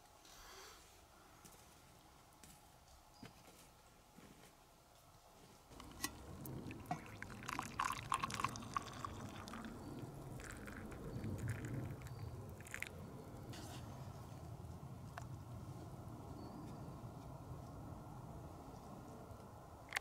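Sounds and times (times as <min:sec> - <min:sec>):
water pouring and trickling: 0:05.7 - 0:13.6.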